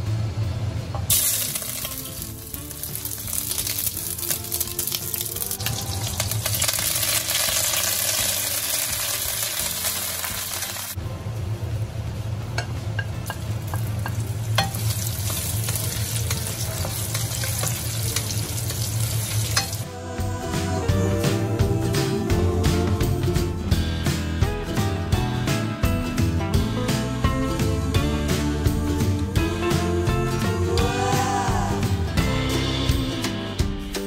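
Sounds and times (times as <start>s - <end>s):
food sizzling in a wok: 1.1s - 11.0s, 13.0s - 19.9s.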